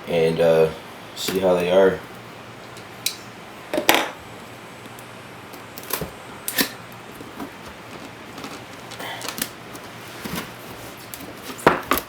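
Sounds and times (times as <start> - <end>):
box rustling: 7.0 - 12.0.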